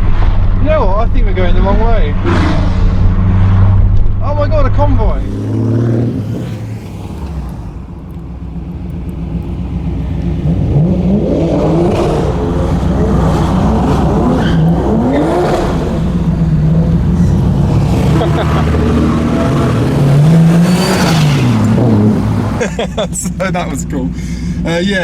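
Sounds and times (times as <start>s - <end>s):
sports car engine accelerating: 5.0s - 25.0s.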